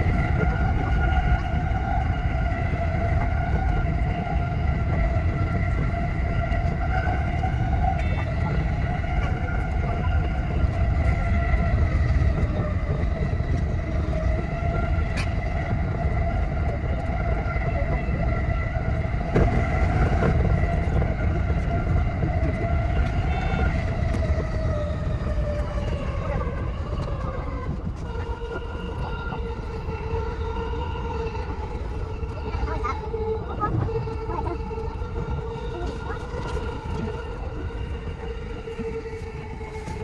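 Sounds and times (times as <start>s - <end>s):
steady whine: 0.0s - 40.0s
train wheels rumbling on rails: 0.0s - 40.0s.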